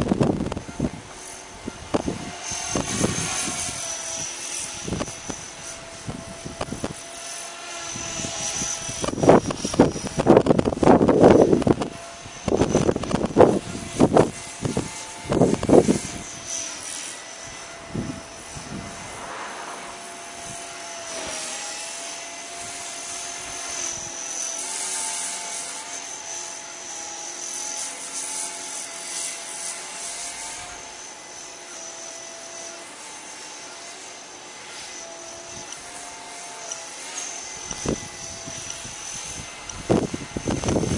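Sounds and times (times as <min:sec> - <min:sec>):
wind buffeting microphone: 0:00.0 - 0:03.9, 0:04.7 - 0:07.0, 0:08.0 - 0:16.5, 0:17.4 - 0:21.2, 0:37.6 - 0:40.9
rc helicopter motor whine: 0:00.0 - 0:40.9.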